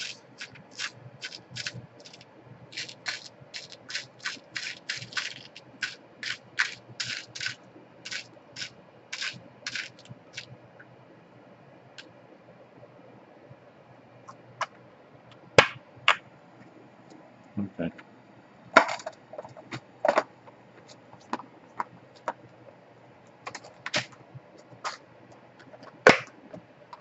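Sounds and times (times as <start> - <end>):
plastic clicks and scrapes: 0.0 - 10.6.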